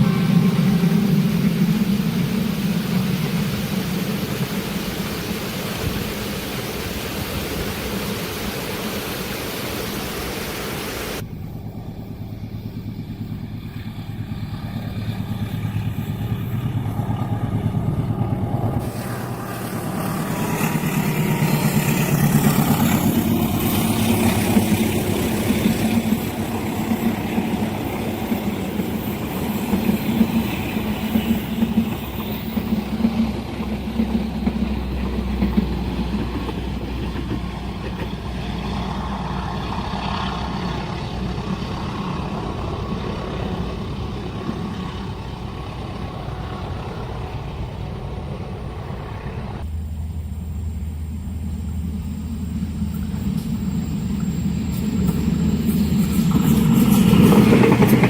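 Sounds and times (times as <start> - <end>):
locomotive engine running: 11.1 - 58.0
train wheels clattering on rails: 12.8 - 47.1, 52.3 - 58.0.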